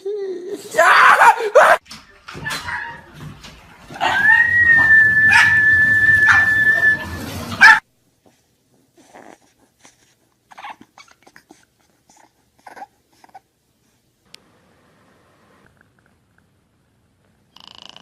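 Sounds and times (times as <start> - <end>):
dog whining: 4.0 - 7.8, 10.5 - 11.6.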